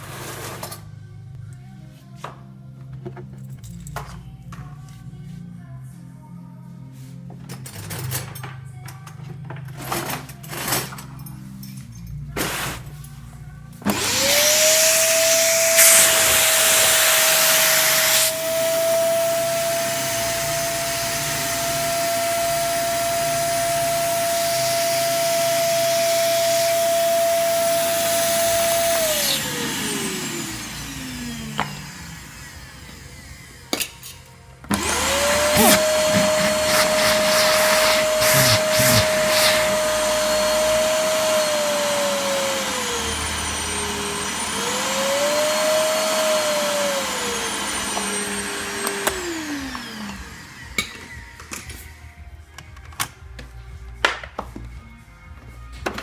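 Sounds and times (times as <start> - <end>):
vacuum cleaner running: 12.4 - 13.0, 13.8 - 52.8.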